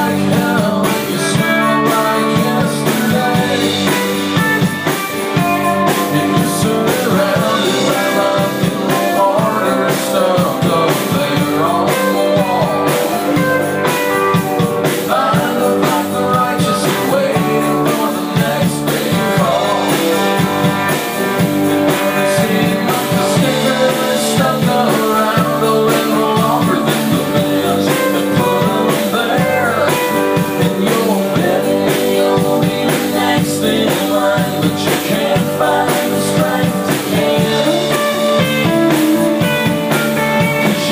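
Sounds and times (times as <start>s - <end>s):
person singing: 0.0s - 40.9s
rock band playing live: 0.0s - 40.9s.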